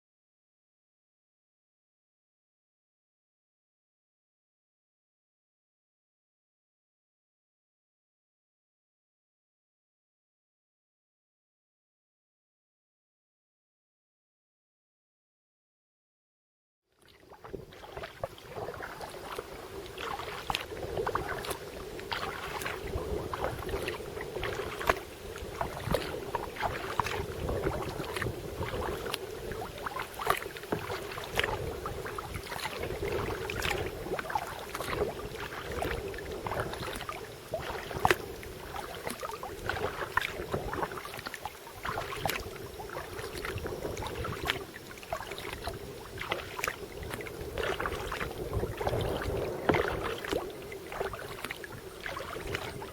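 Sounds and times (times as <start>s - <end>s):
paddle strokes splashing: 17.0s - 52.9s
water rushing along hull: 17.0s - 52.9s.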